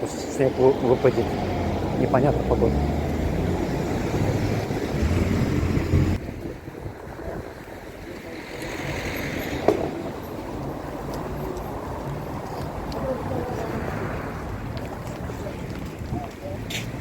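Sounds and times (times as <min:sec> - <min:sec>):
wind buffeting microphone: 0:03.1 - 0:17.0.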